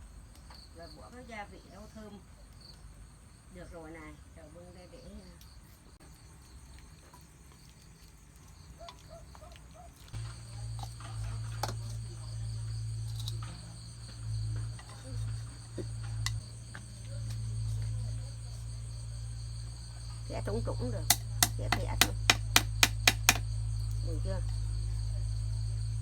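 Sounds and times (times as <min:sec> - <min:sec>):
crickets droning: 0:00.0 - 0:26.0
sharp clicks and knocks: 0:21.1 - 0:23.5.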